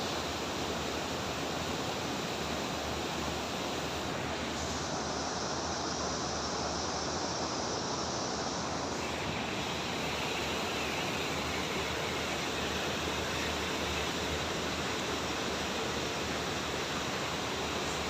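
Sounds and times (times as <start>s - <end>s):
waterfall rushing: 0.2s - 18.0s.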